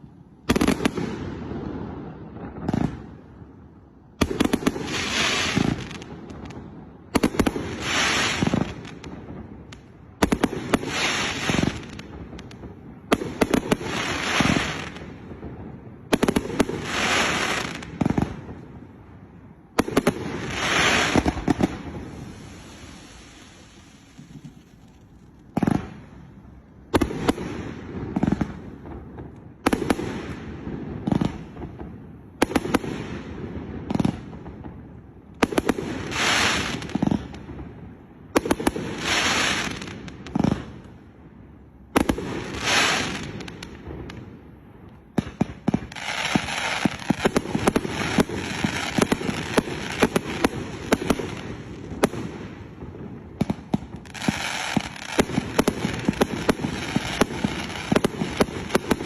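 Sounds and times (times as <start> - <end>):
rapid fireworks barrage crackling: 0.0 - 59.0
fireworks hissing: 7.7 - 8.8, 10.7 - 12.0, 20.4 - 26.0.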